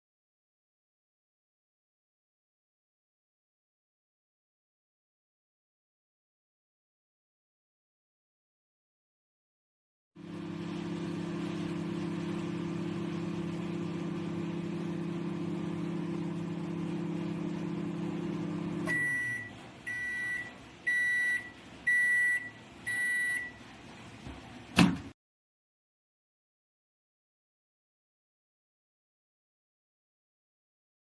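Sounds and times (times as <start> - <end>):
microwave beeps: 10.2 - 23.6
microwave oven humming: 10.2 - 25.1.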